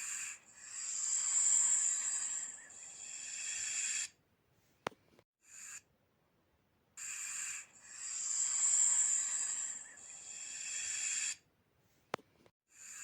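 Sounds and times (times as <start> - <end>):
snake hissing: 0.0 - 4.2, 7.0 - 11.4.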